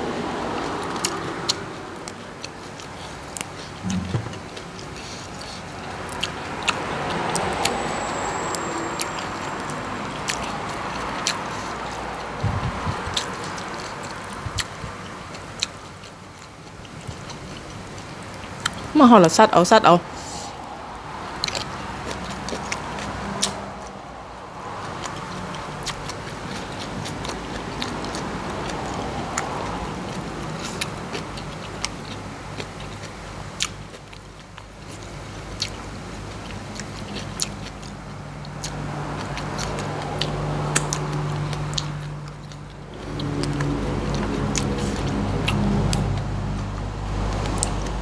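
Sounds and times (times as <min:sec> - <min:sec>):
engine in background: 0:00.0 - 0:48.0
person chewing crisp food: 0:00.5 - 0:07.8, 0:09.0 - 0:18.9, 0:21.4 - 0:24.0, 0:24.6 - 0:48.0
steady low hum: 0:03.8 - 0:05.4.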